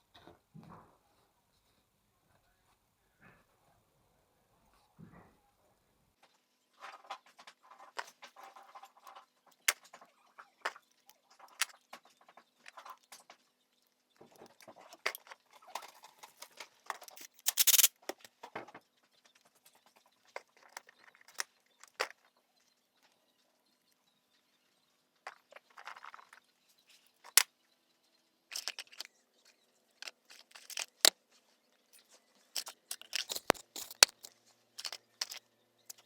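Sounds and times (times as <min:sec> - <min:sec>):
metal tools clinking: 0:28.5 - 0:29.1, 0:30.0 - 0:31.1, 0:32.0 - 0:36.0.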